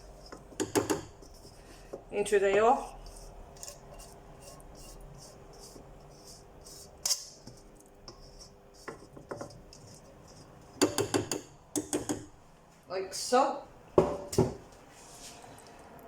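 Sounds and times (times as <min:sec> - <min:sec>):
utensil scraping containers: 0:00.0 - 0:11.2.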